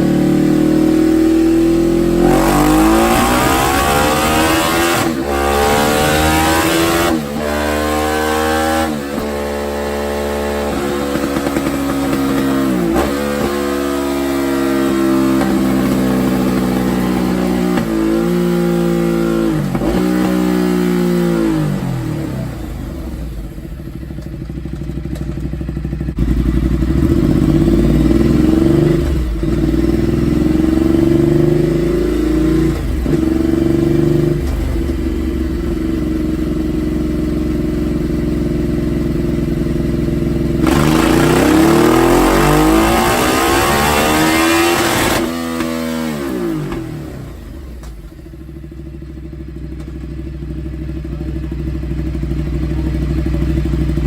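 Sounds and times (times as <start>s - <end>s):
motorcycle engine revving loud: 0.0s - 49.6s, 50.2s - 54.0s.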